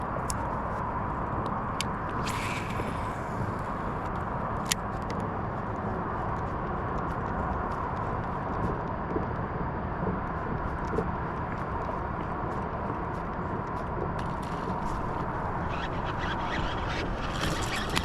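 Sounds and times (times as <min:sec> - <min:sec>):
wind: 0:00.0 - 0:18.0
small clicks: 0:14.2 - 0:18.0.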